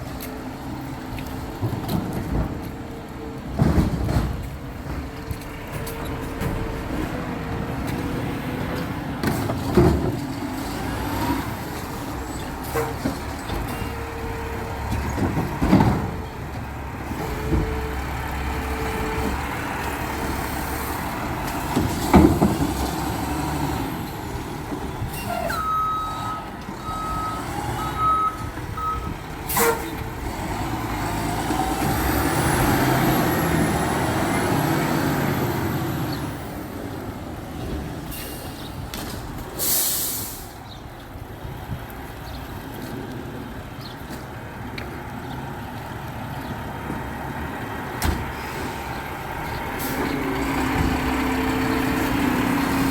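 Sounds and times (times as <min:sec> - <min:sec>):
garbage truck diesel engine: 0:00.0 - 0:52.9
backup beeps: 0:25.2 - 0:29.2.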